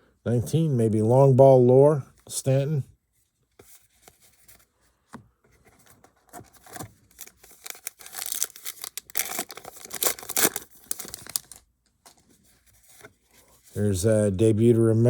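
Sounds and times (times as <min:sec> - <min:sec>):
wrapper tearing and crinkling: 0:06.6 - 0:11.6.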